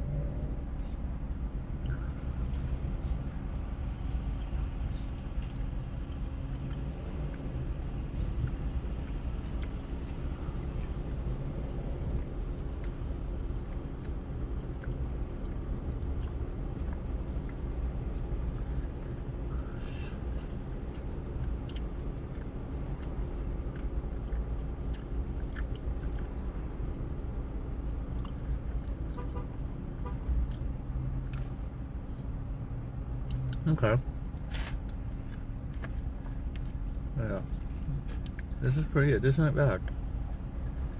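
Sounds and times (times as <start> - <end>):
person chewing food: 1.8 - 29.2, 30.4 - 38.6.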